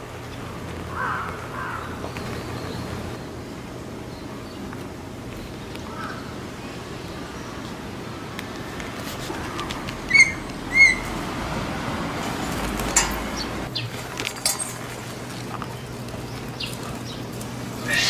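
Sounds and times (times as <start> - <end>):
outdoor background noise: 0.0 - 18.0
bird calls: 0.3 - 3.5, 9.2 - 11.2, 15.5 - 18.0.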